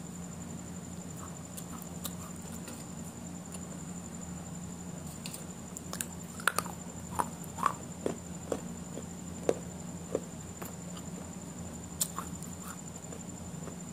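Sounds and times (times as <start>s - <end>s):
person chewing food: 5.8s - 11.3s, 12.0s - 13.8s.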